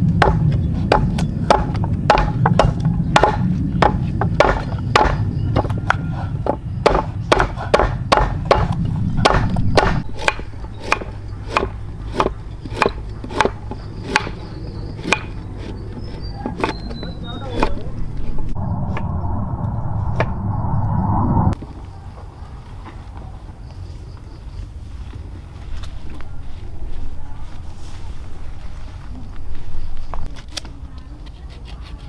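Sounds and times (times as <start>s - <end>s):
blade chopping into wood: 0.0s - 18.5s.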